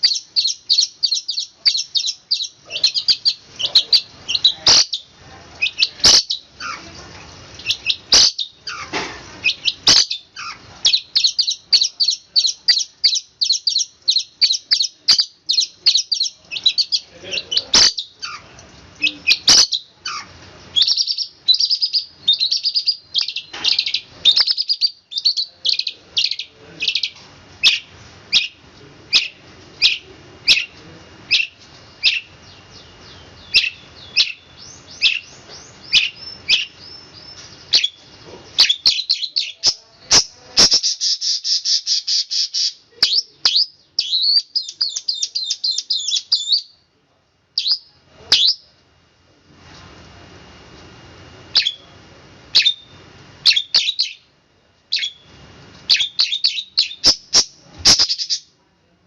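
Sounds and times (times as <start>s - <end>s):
shrike singing chirps and trills: 0.0s - 7.0s, 7.6s - 46.8s, 47.6s - 48.7s, 51.5s - 54.3s, 54.9s - 58.5s.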